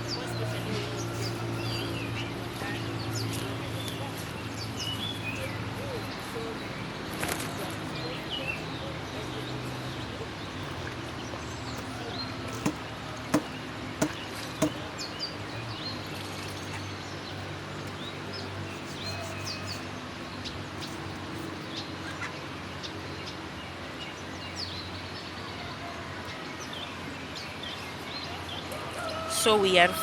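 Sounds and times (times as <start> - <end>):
birds chirping: 0.0 - 30.0
sharp knocks: 12.5 - 14.9.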